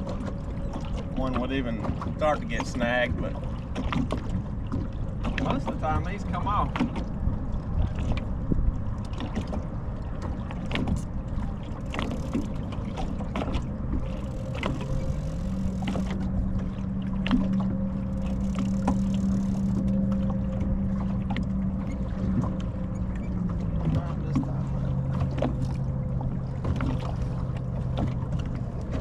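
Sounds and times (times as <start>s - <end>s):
low wind rumble: 0.0s - 29.0s
electric trolling motor humming: 9.6s - 29.0s.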